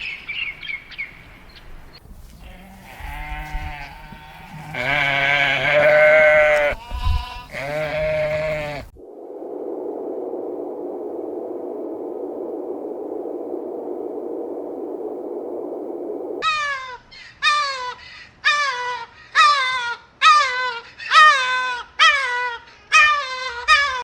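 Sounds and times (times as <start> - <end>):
animal calling: 0.0 - 8.9
steady hiss: 0.0 - 16.4.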